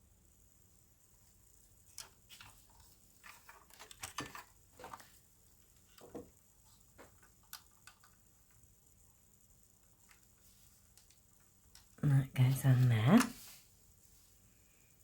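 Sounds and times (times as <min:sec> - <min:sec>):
small plastic parts clicking: 0:01.9 - 0:05.1, 0:07.0 - 0:08.7, 0:09.8 - 0:12.0.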